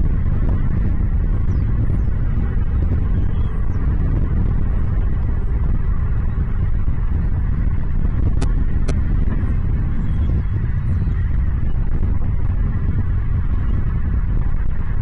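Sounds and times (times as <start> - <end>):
loud low rumble: 0.0 - 15.0.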